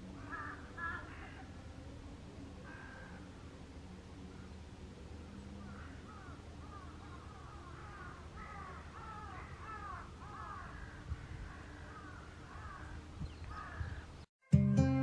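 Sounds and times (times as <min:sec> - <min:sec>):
birds calling: 0:00.0 - 0:01.6, 0:04.3 - 0:14.3.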